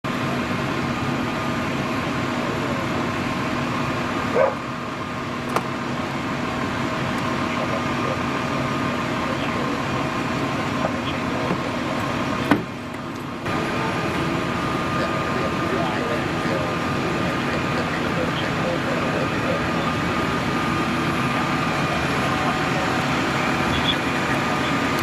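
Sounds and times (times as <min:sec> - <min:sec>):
engine idling hum: 0:00.0 - 0:25.0
dog barking: 0:04.3 - 0:04.6.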